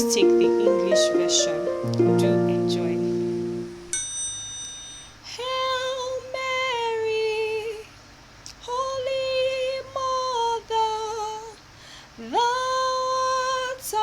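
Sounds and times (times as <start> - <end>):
woman singing a hymn: 0.0 - 3.2, 5.3 - 8.0, 8.6 - 14.0
keyboard note: 0.0 - 4.0.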